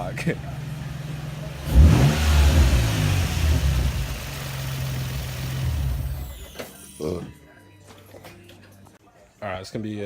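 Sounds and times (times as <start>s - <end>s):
car engine idling and revving: 0.0s - 6.6s.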